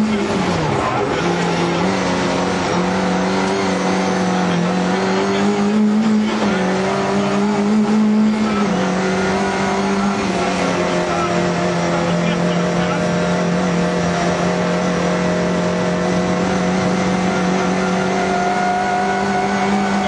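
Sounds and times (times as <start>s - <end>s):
rally car engine at high revs: 0.0s - 20.0s.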